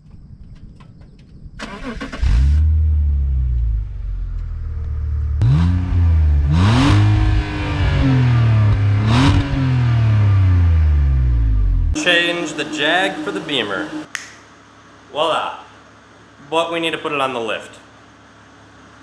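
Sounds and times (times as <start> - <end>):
car engine starting and revving: 1.6 - 14.1.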